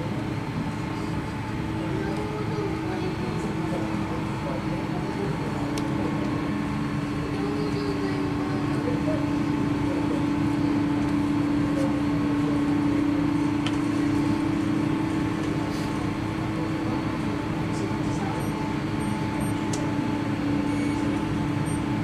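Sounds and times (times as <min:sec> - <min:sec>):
airliner cabin hum: 0:00.0 - 0:22.0.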